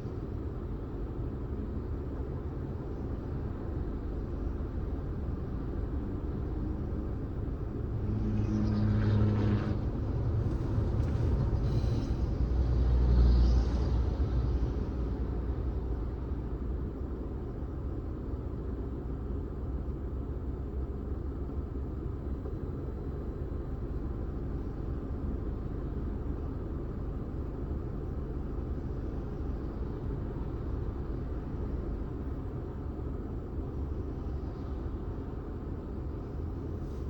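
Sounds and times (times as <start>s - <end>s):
car engine and tyre rumble: 0.0s - 37.0s.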